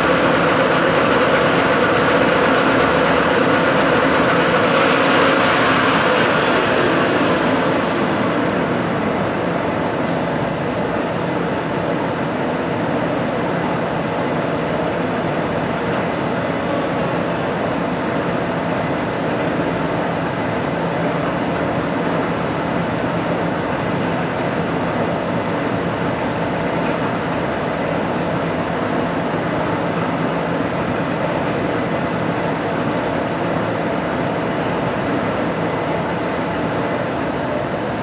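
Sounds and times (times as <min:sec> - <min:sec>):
machinery running: 0:00.0 - 0:38.0.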